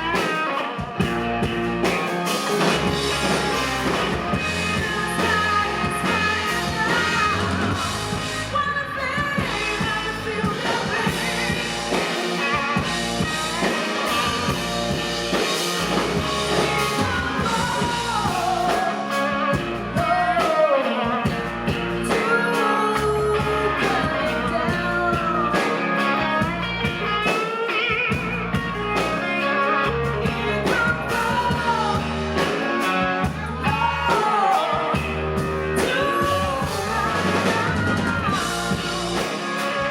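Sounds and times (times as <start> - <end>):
bass guitar: 0.0 - 39.9
drum kit: 0.0 - 39.9
electric guitar: 0.0 - 39.9
person singing: 1.9 - 39.9.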